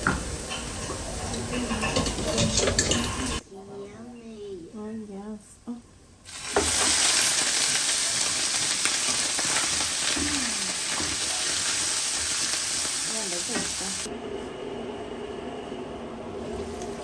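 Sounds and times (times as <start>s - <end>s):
meat sizzling in a pot: 6.3s - 14.1s.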